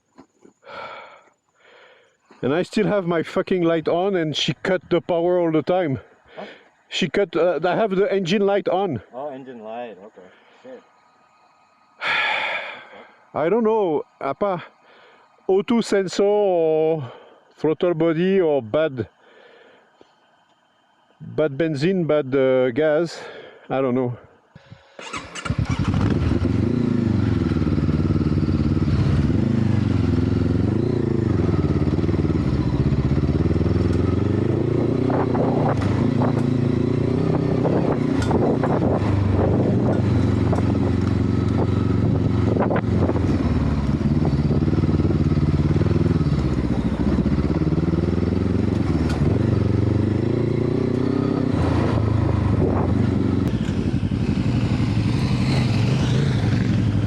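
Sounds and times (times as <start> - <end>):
motorcycle engine revving: 25.0 - 57.0.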